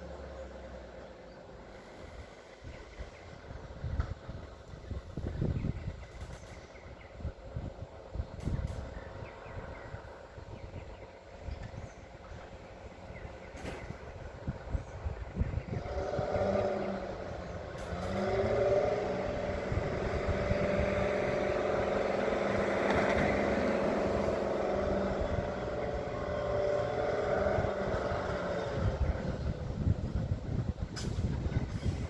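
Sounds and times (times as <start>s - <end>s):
wind buffeting microphone: 1.9s - 32.0s
engine revving: 13.6s - 30.1s.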